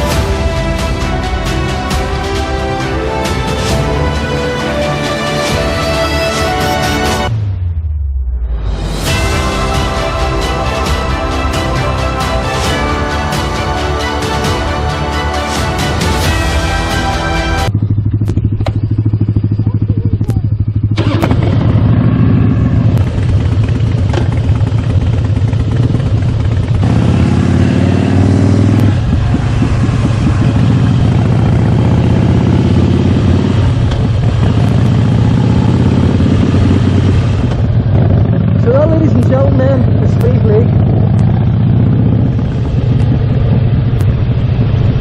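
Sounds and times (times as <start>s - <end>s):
motorcycle engine rumble: 0.0s - 45.0s
wind rushing over microphone: 28.4s - 45.0s.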